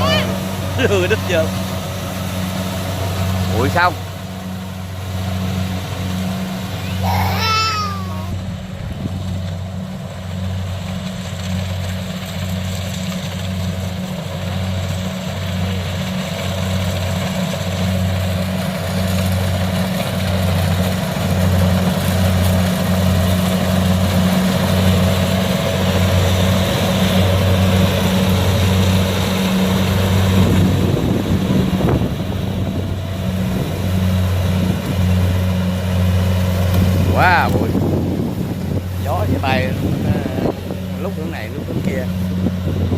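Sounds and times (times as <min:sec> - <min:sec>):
diesel engine throbbing: 0:00.0 - 0:42.9
threshing machinery rushing: 0:16.2 - 0:42.9.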